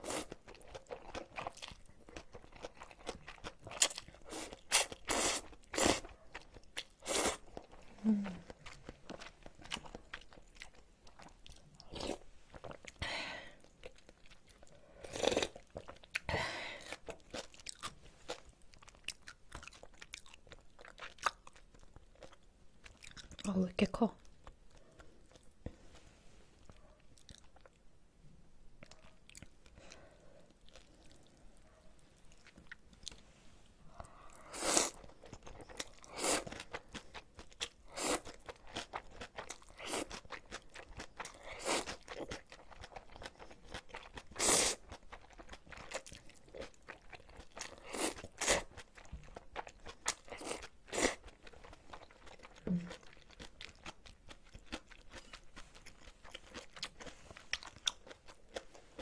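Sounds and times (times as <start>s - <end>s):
crisp chewing crunches: 0.0s - 13.0s, 33.9s - 59.0s.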